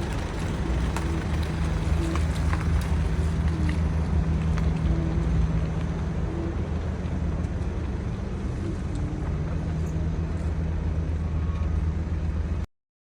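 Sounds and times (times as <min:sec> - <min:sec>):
low engine drone: 0:00.0 - 0:12.7.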